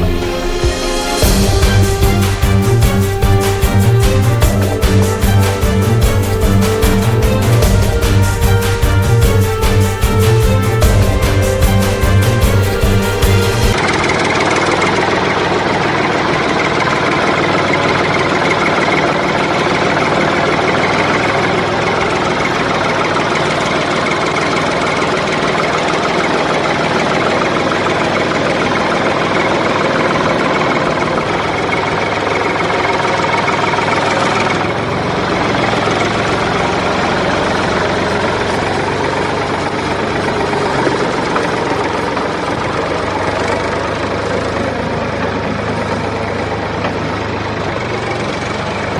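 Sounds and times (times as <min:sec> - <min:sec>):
vehicle engine running: 0:00.0 - 0:48.9.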